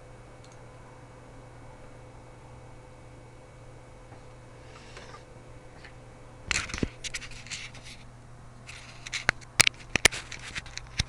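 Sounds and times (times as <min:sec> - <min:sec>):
steady low hum: 0:00.0 - 0:11.0
scratching and scraping handling noise: 0:05.8 - 0:11.0.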